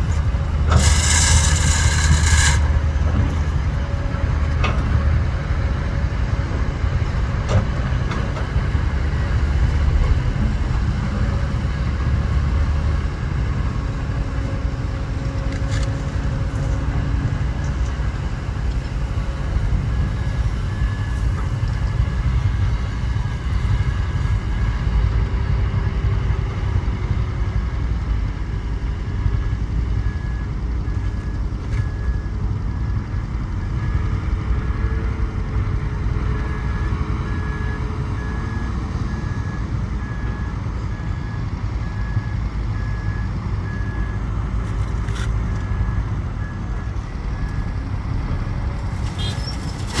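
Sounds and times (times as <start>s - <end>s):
diesel engine rumbling: 0.0s - 50.0s
reversing alarm beeping: 36.6s - 50.0s.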